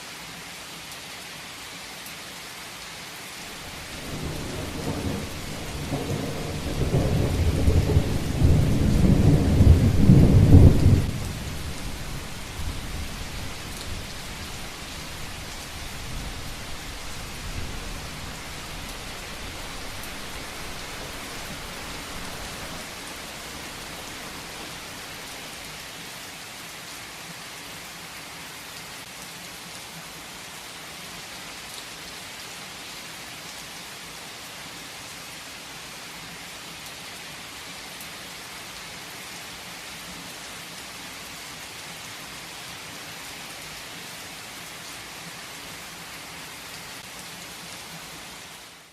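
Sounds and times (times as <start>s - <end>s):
heavy rain falling: 0.1s - 48.9s
thunder rumbling: 3.6s - 25.2s.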